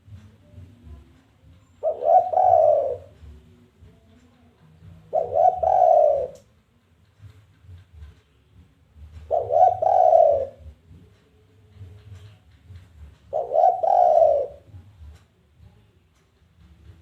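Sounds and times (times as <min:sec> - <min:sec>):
dove cooing: 0:01.8 - 0:03.5, 0:04.8 - 0:06.5, 0:09.2 - 0:11.0, 0:13.1 - 0:15.0.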